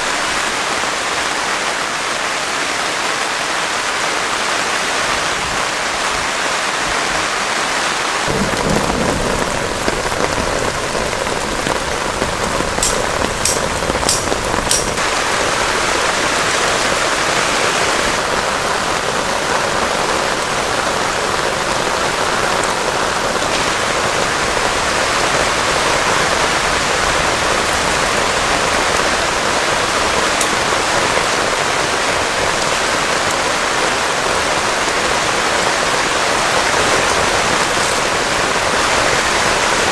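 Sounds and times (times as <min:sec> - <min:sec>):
heavy rain pouring: 0:00.0 - 0:39.9
thunder rumble: 0:08.3 - 0:32.6
sharp ticks: 0:12.8 - 0:15.0.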